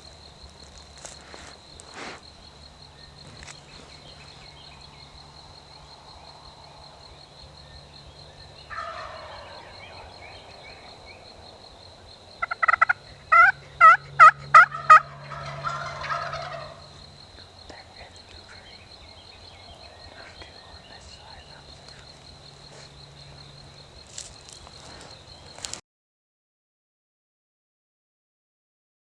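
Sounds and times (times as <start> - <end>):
wild turkey gobbling: 8.6 - 11.0, 12.4 - 16.8.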